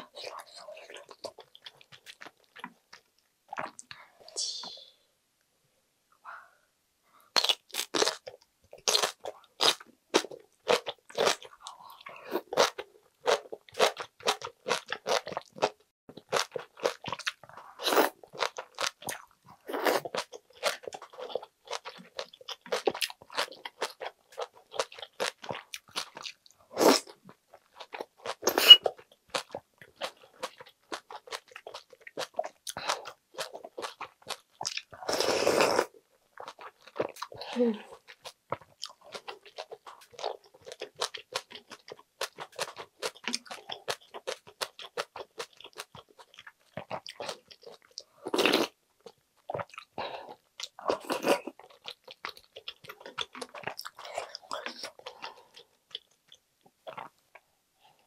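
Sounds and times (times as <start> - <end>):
slurping soup from a spoon: 28.4 - 28.9.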